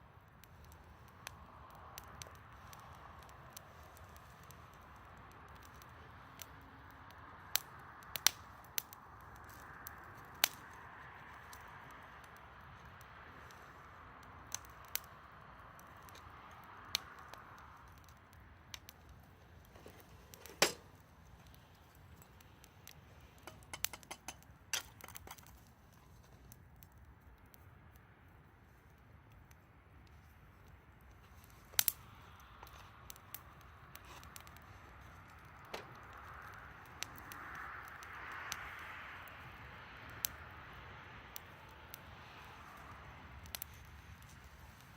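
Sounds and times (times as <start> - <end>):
campfire crackling and popping: 0.0 - 44.9
soft hiss of fire: 0.0 - 44.9
wood popping: 18.7 - 26.4.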